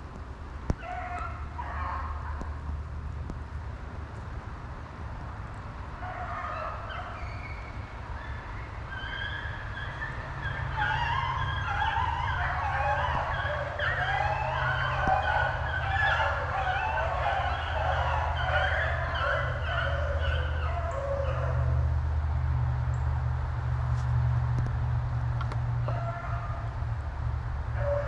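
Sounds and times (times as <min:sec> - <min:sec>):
hounds baying: 0:00.8 - 0:02.5, 0:06.0 - 0:21.9, 0:25.8 - 0:26.7, 0:27.7 - 0:28.0.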